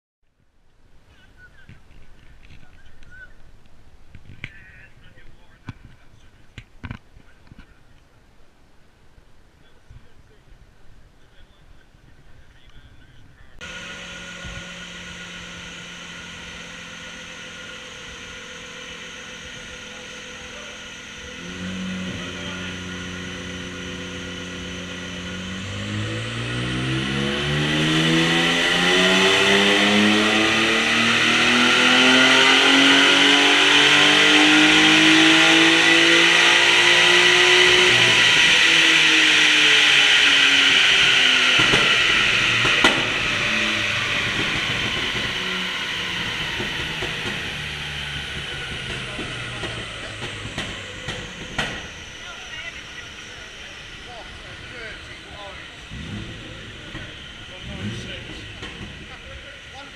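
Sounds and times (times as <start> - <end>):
car engine revving under load: 13.6 - 59.9.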